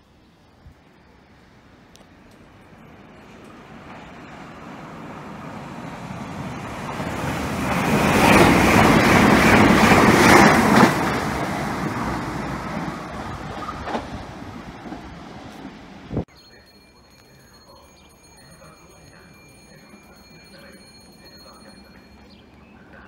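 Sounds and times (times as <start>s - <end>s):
train passing on rails: 0.3s - 23.0s.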